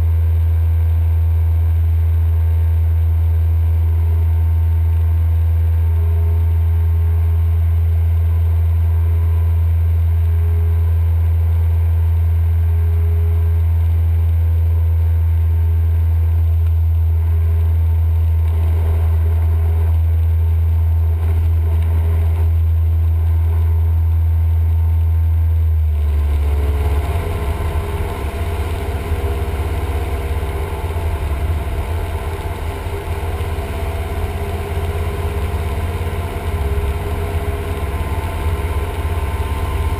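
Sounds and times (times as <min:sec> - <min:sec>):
airplane engine and propeller droning: 0:25.9 - 0:39.9.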